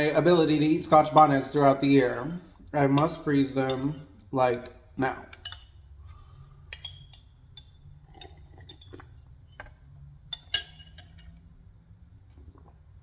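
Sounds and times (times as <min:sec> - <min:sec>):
dishes and utensils clinking: 0:00.9 - 0:06.0, 0:06.6 - 0:11.5.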